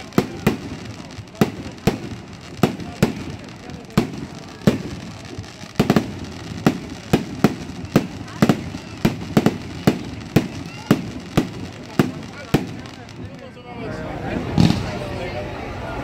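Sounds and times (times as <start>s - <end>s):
fireworks bangs: 0.0s - 13.6s, 14.4s - 15.2s.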